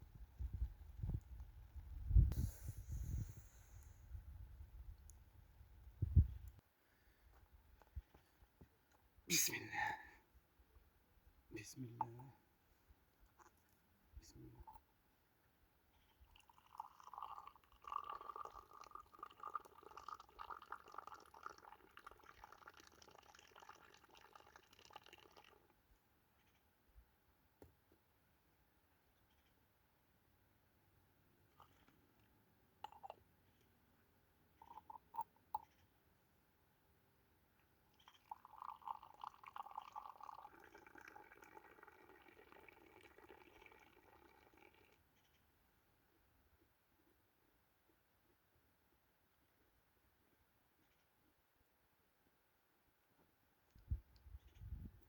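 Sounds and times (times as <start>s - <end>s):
liquid pouring: 16.3s - 25.8s, 38.0s - 45.0s.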